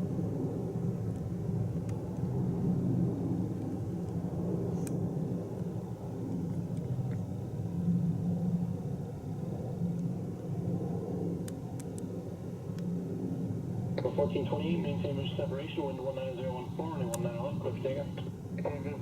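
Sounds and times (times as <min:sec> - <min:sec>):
distant aircraft rumble: 0:00.0 - 0:19.0
traffic noise: 0:11.6 - 0:19.0.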